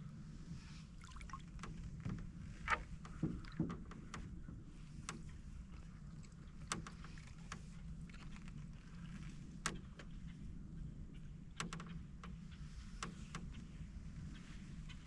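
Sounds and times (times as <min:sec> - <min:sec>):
low steady rumble: 0:00.0 - 0:15.0
paddle and canoe knocks and creaks: 0:01.1 - 0:10.4.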